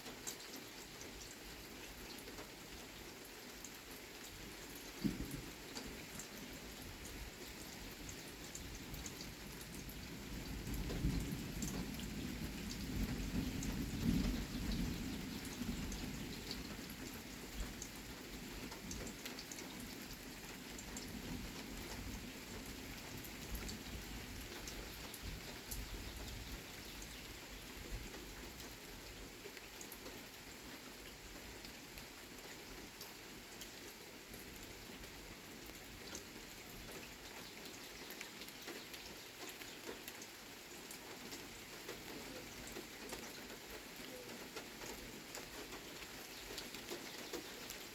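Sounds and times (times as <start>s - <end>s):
steady rain falling: 0.0s - 47.9s
low roll of thunder: 10.4s - 16.7s.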